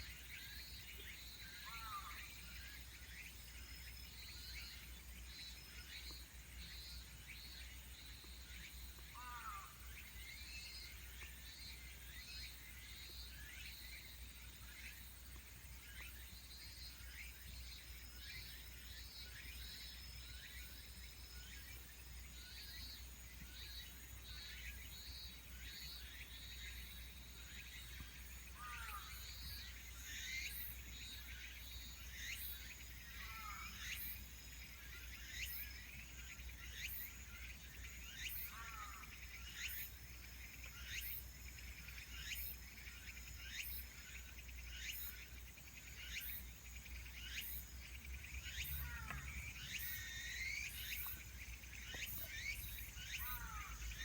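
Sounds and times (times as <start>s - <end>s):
insects trilling: 0.0s - 54.0s
bird chirping: 36.4s - 54.0s.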